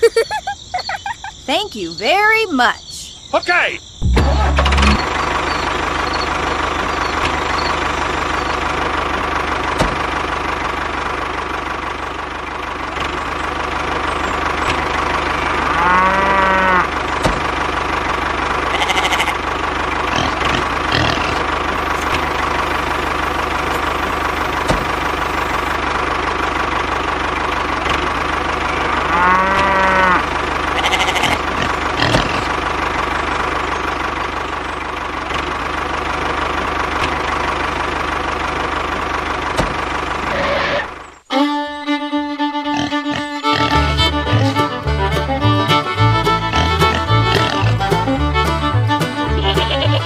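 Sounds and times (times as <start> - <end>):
tractor motor running: 4.0 - 50.0
moo-like call: 15.3 - 17.0, 28.7 - 31.4.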